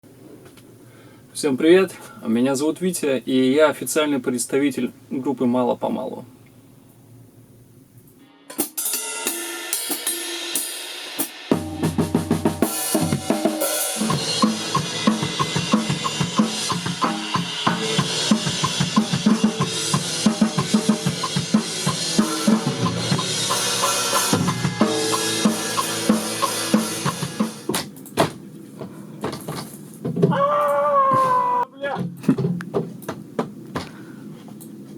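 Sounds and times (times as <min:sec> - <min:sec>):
drum kit beat: 0:08.4 - 0:28.4
rock band music: 0:11.6 - 0:27.7.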